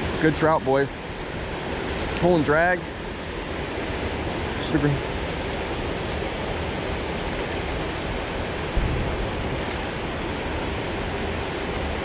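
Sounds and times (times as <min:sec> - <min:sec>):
creek water flowing: 0:00.0 - 0:12.0
low thump: 0:08.7 - 0:09.8.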